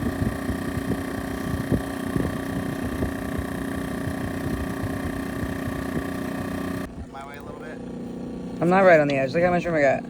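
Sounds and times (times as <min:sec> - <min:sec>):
wind rumbling on microphone: 0:00.0 - 0:07.6
small boat motor running: 0:00.0 - 0:10.0.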